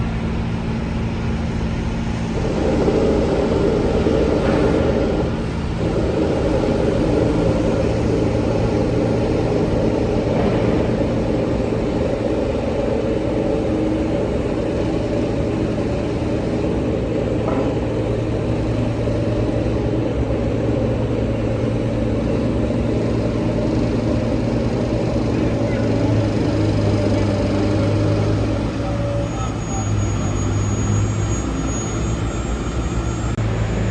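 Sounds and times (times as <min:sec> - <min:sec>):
dump truck engine droning: 0:00.0 - 0:33.9.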